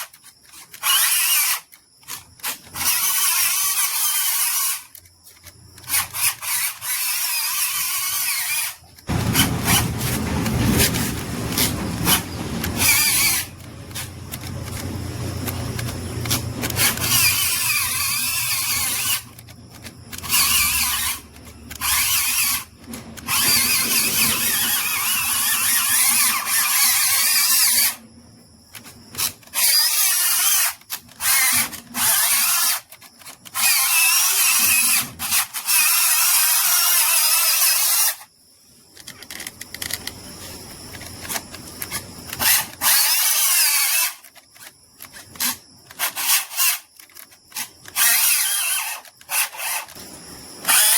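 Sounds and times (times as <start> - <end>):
power drill bursts: 10.8 - 14.1.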